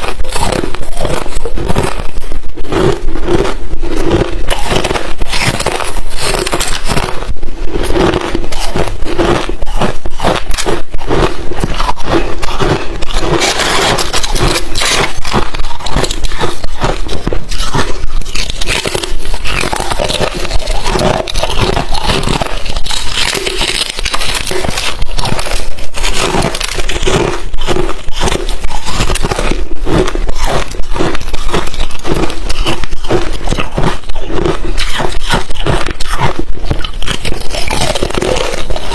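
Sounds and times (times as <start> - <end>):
crushed ice being chewed: 0.0 - 38.9.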